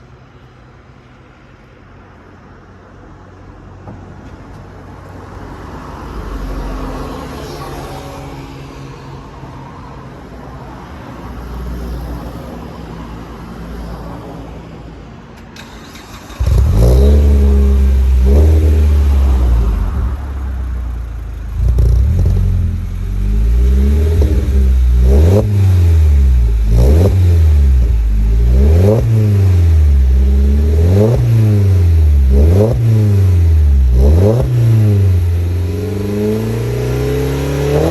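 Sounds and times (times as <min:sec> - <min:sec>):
car engine revving: 0:15.6 - 0:37.9.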